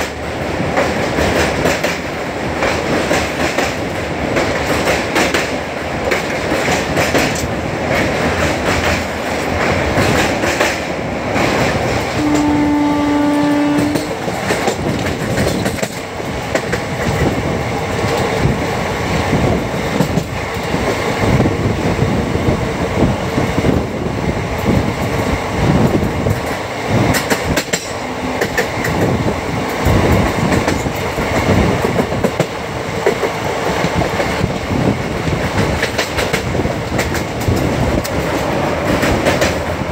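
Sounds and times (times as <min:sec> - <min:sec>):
train rumble: 0:00.0 - 0:39.9
train horn: 0:12.1 - 0:14.4
wheels clattering over rail joints: 0:13.9 - 0:17.3.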